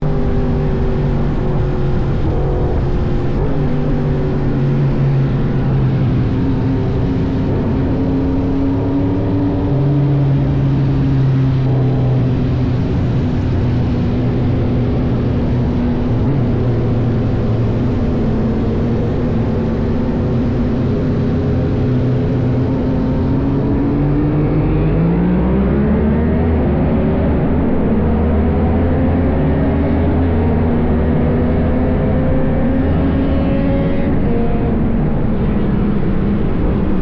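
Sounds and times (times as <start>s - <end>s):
wind rushing over microphone: 0.0s - 37.0s.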